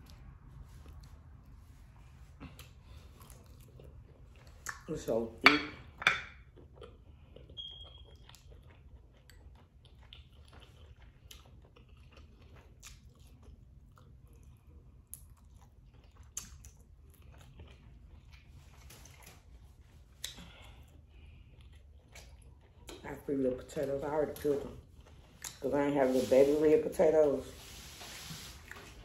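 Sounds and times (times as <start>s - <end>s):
person chewing food: 0.0s - 4.9s, 5.9s - 23.1s, 24.7s - 25.6s.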